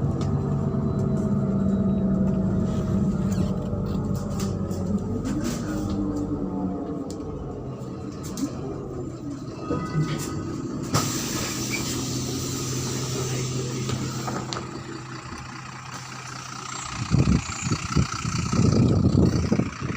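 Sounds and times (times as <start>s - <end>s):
bus diesel engine running: 0.0s - 19.9s
air hiss: 10.9s - 13.8s.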